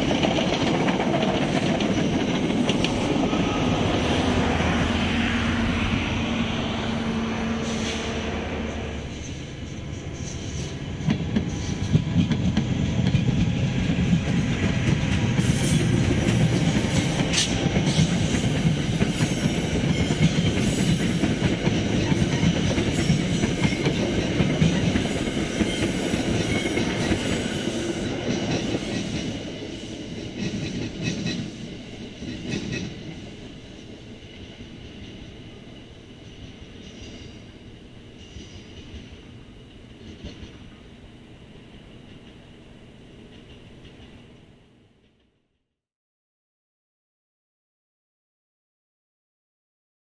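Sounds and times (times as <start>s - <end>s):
clickety-clack over rail joints: 0.0s - 4.1s, 9.2s - 35.3s, 38.2s - 40.8s, 43.3s - 45.3s
train wheels rumbling on rails: 0.0s - 45.4s.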